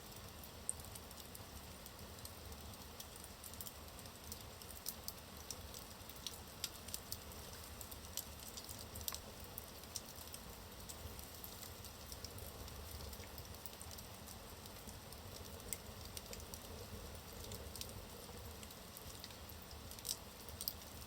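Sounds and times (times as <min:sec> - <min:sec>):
logs crackling in fireplace: 0:00.0 - 0:21.0.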